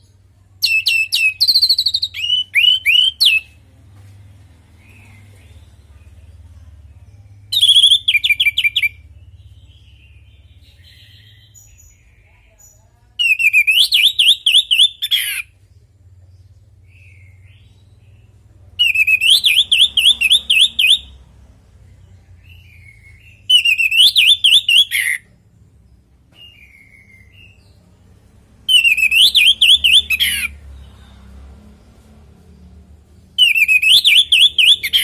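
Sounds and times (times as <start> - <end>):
thrush singing whistled notes: 7.4 - 11.8, 18.8 - 21.2, 22.5 - 25.2, 28.6 - 31.1, 33.4 - 35.0.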